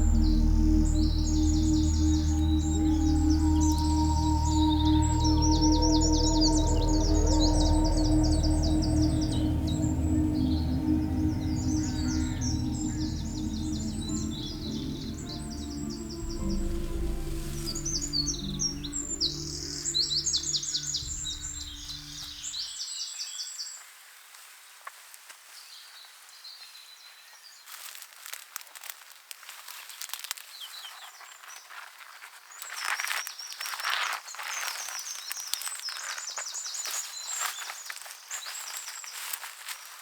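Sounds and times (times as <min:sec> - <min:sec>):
music: 0:00.0 - 0:22.4
songbirds singing in high trills: 0:00.0 - 0:22.5.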